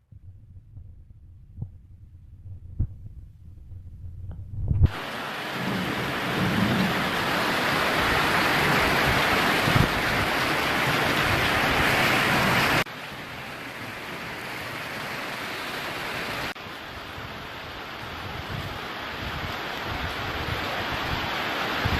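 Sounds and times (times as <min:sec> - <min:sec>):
heavy rain pouring: 0:04.9 - 0:21.9.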